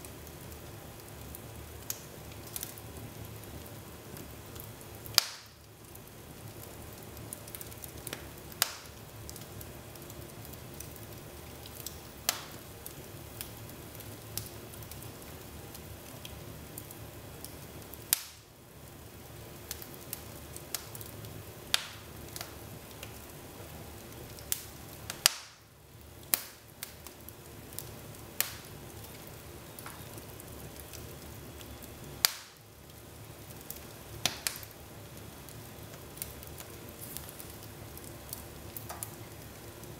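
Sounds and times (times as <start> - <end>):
fire crackling: 0.0 - 39.9
wood fire hissing: 0.0 - 39.9
loud fire pops: 1.3 - 11.0, 11.6 - 15.4, 16.8 - 18.5, 21.7 - 23.3, 24.3 - 32.7, 33.5 - 34.8.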